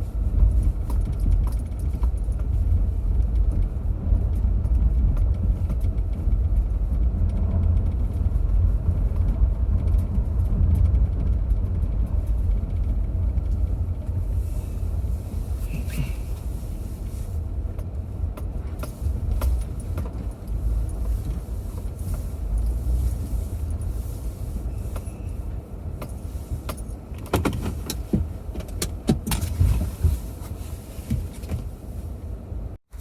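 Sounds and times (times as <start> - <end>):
car driving rumble: 0.0 - 33.0
sharp clicks and rattles: 0.5 - 14.4, 26.0 - 30.2.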